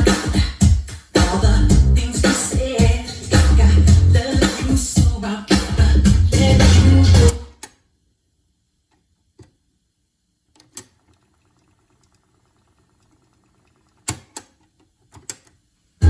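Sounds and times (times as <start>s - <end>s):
faint tape hiss: 0.5s - 16.0s
cassette deck mechanical clicks: 14.1s - 15.6s.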